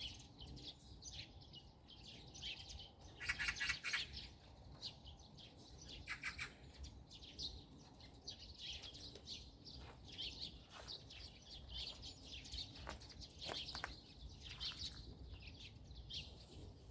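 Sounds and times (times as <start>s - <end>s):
small birds chirping: 0.0s - 16.9s.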